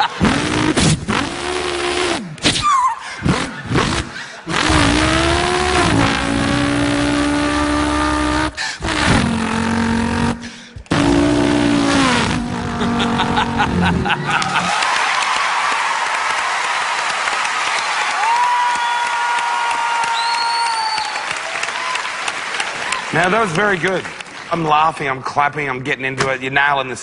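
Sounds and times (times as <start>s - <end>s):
man imitating revving car engine: 3.2s - 14.7s.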